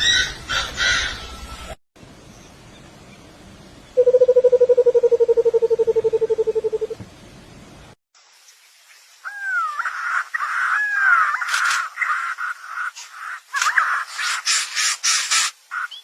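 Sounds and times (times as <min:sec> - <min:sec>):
bird trilling: 0:04.0 - 0:07.0.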